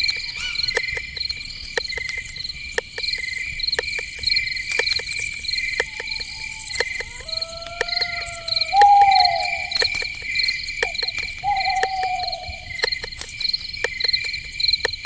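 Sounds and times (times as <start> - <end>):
crickets chirping: 0.0 - 15.0
sharp clicks: 0.7 - 15.0
long steady calls: 4.8 - 13.1.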